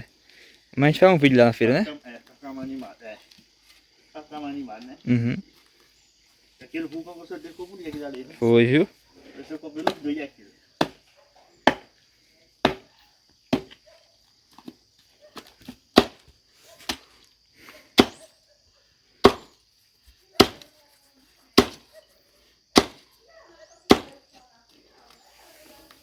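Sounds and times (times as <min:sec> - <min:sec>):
wood being chopped: 0:09.8 - 0:10.1, 0:10.8 - 0:12.0, 0:12.6 - 0:12.9, 0:13.5 - 0:13.8, 0:14.5 - 0:17.1, 0:18.0 - 0:18.2, 0:19.2 - 0:19.6, 0:20.4 - 0:20.7, 0:21.6 - 0:21.9, 0:22.7 - 0:23.1, 0:23.9 - 0:24.2.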